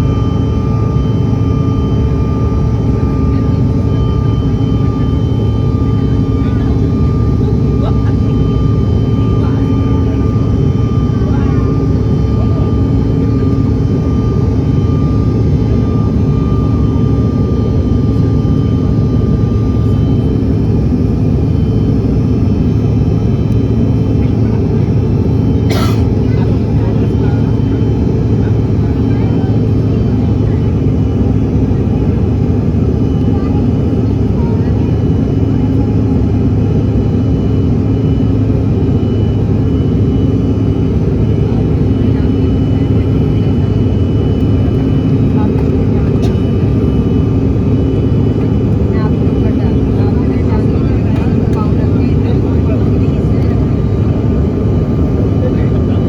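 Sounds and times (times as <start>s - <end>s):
jet engine and airflow drone: 0.0s - 56.0s.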